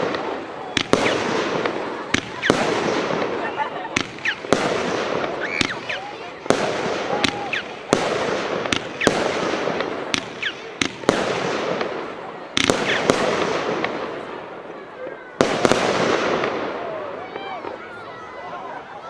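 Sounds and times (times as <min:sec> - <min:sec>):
firework crackling hiss: 0:00.0 - 0:14.1
firework bangs: 0:00.0 - 0:17.9.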